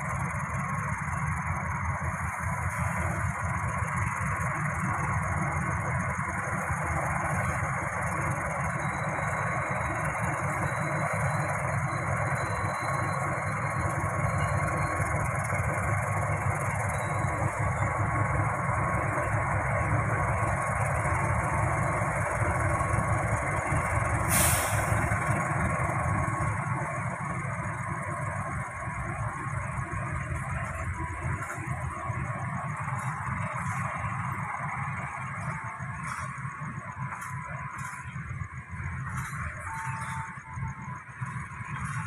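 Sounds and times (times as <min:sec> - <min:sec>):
train rumbling: 0:00.0 - 0:42.0
hiss: 0:24.2 - 0:25.3.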